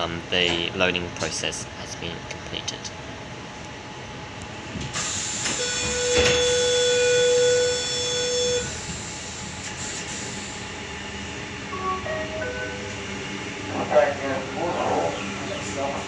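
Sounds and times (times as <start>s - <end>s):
electronic door warning buzz: 5.3s - 8.8s.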